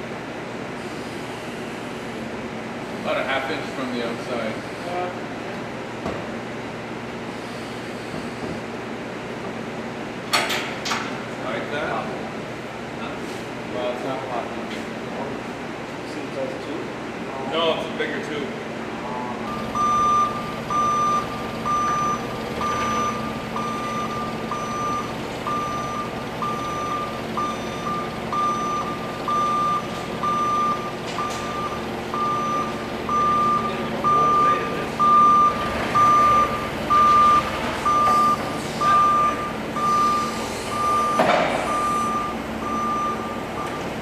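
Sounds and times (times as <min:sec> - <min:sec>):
machine humming: 0:19.0 - 0:44.0
forklift back-up alarm beeping: 0:19.5 - 0:44.0.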